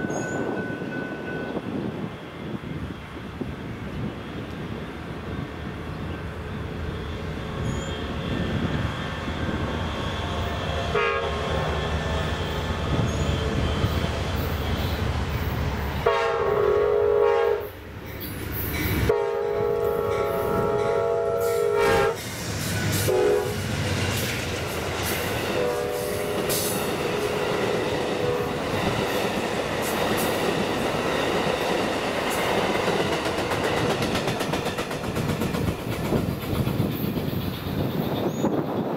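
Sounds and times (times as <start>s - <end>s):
train chime horn: 0.0s - 1.8s, 10.9s - 14.0s, 16.0s - 17.8s, 19.1s - 22.2s, 22.9s - 23.6s, 25.5s - 28.7s
diesel locomotive rumbling: 0.0s - 38.9s
wheels clicking over rail joints: 28.8s - 38.5s.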